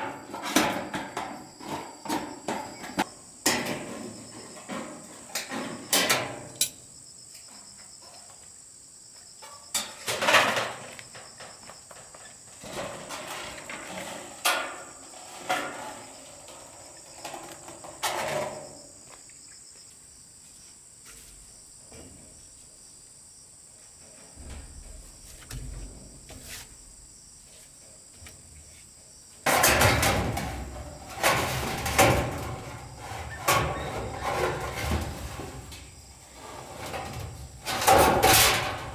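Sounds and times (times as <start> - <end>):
clattering and scraping: 0.0 - 6.6, 9.8 - 18.8, 24.1 - 27.4, 29.4 - 38.9
crickets chirping: 0.0 - 38.9
building work knocks and handling: 24.2 - 27.2, 28.1 - 38.9.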